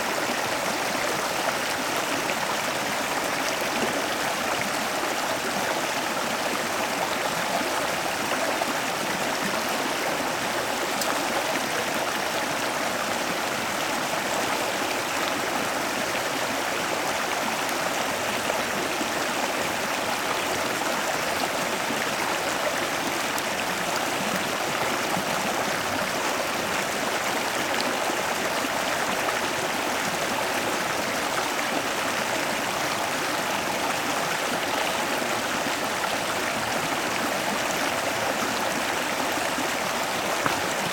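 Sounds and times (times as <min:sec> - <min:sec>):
running water rushing: 0:00.0 - 0:40.9.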